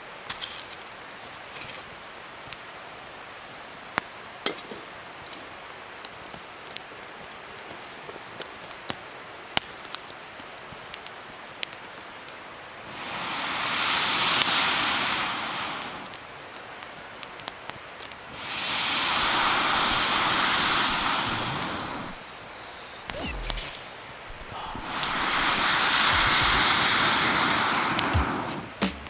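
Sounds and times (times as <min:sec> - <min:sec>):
wood fire crackling and popping: 0:05.2 - 0:29.0
rushing hiss: 0:12.9 - 0:16.3, 0:18.3 - 0:29.0.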